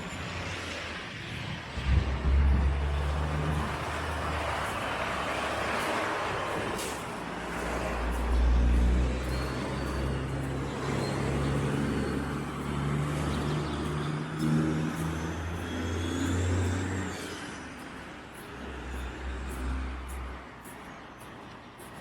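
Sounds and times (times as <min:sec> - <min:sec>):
vehicle engine revving: 0:01.8 - 0:17.5.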